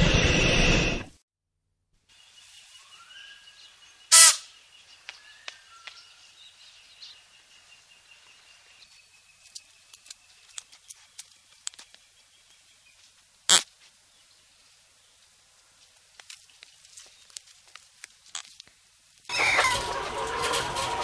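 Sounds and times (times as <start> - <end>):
faint bird chirps: 2.1 - 13.1.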